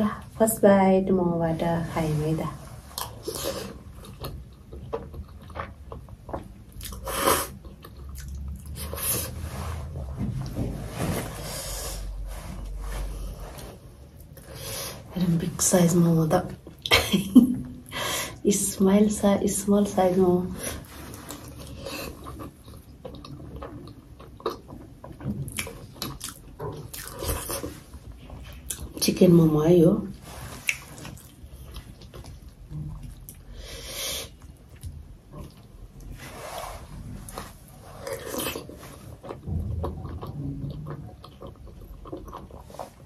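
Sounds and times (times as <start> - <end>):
person chewing with wet mouth sounds: 2.7 - 10.7, 20.8 - 29.1, 30.3 - 36.2, 37.1 - 43.0
wet chewing mouth noises: 37.3 - 43.0.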